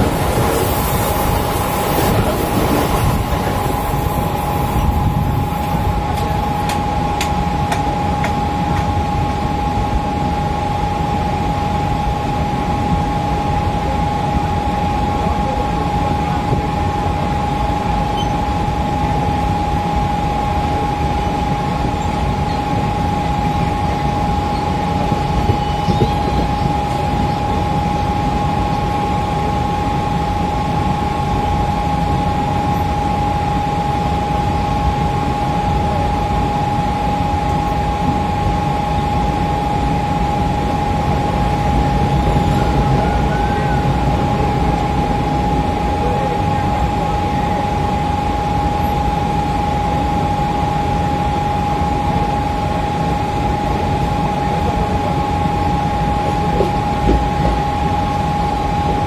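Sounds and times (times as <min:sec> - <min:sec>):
wind noise: 0:00.0 - 0:06.8, 0:23.5 - 0:28.0
train rushing past: 0:00.0 - 0:08.9, 0:36.9 - 0:49.3
steady high tone: 0:00.0 - 0:59.0
train rumble: 0:00.0 - 0:59.0.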